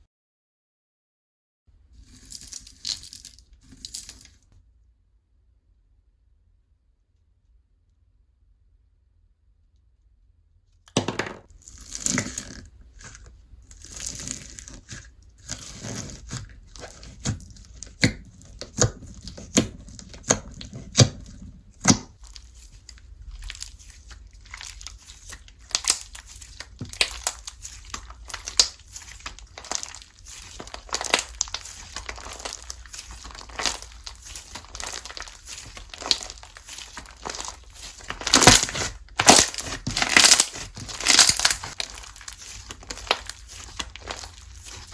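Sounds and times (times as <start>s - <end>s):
slime popping and crackling: 13.7s - 44.9s.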